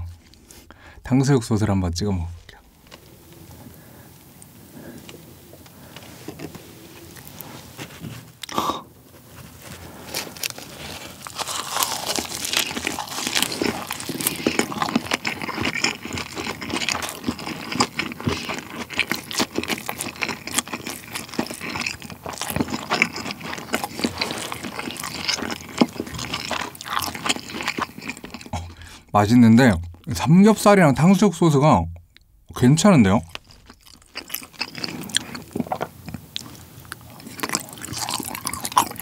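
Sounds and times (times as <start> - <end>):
crunchy chewing and mouth smacks: 9.4 - 28.9, 33.2 - 39.0.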